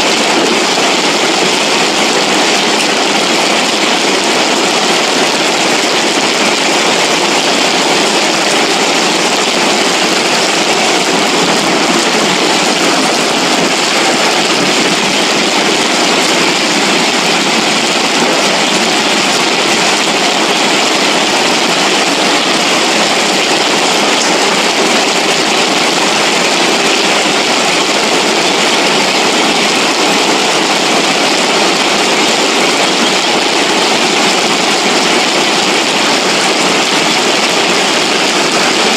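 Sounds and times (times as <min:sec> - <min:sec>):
floodwater rushing: 0:00.0 - 0:38.9.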